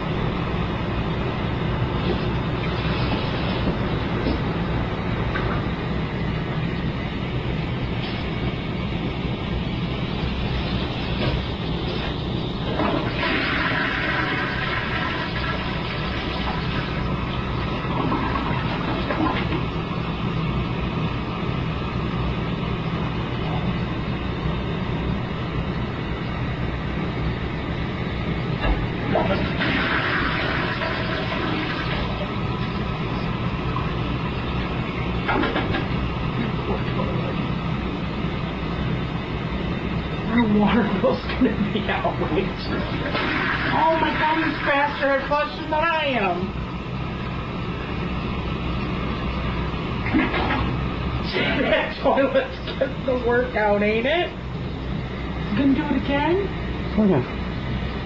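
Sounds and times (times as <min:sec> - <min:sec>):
low hum: 0:00.0 - 0:58.0
toilet flushing and refilling: 0:12.7 - 0:19.7, 0:28.9 - 0:32.9, 0:42.6 - 0:45.6.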